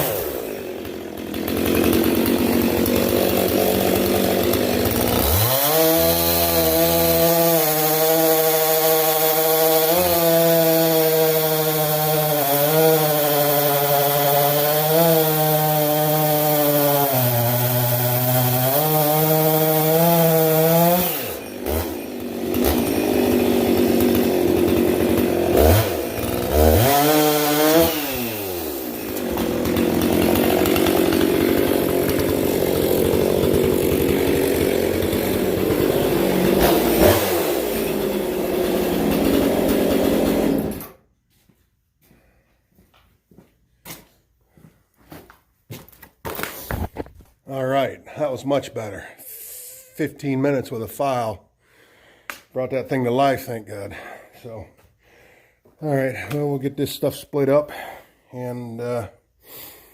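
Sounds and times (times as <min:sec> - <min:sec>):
chainsaw throttle blips: 0:00.0 - 0:40.9
chainsaw cutting wood: 0:00.0 - 0:41.1, 0:45.7 - 0:47.3, 0:52.1 - 0:54.7, 0:57.4 - 0:58.0.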